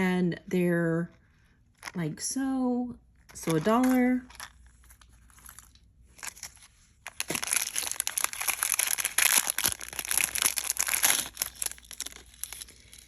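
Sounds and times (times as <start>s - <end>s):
packaging crinkling and rustling: 3.2s - 13.0s.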